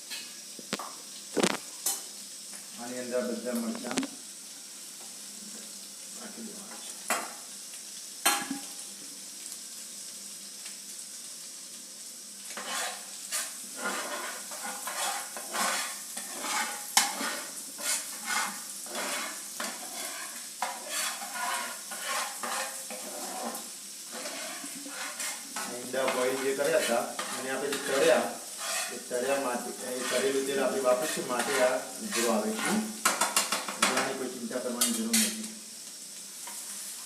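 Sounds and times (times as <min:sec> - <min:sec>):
food sizzling in oil: 0:00.0 - 0:37.0
spatula scraping pan: 0:12.5 - 0:35.5.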